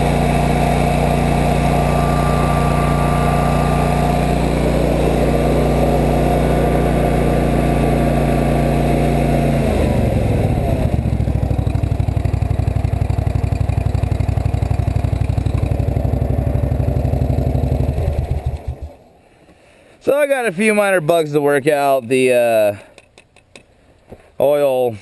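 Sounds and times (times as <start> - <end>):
mower engine running: 0.0 - 19.2.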